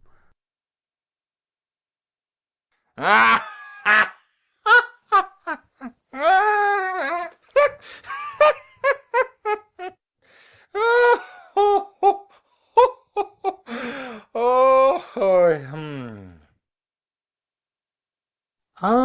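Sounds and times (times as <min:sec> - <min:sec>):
man laughing mockingly: 0:03.0 - 0:10.0, 0:10.8 - 0:13.7.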